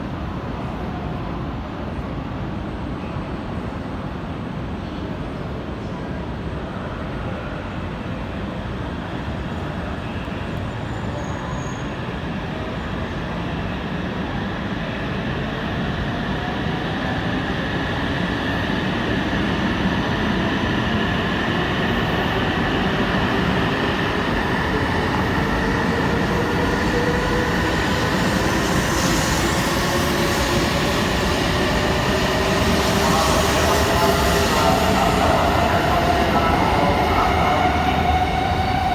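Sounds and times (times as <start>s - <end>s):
train rolling noise: 12.0s - 38.9s.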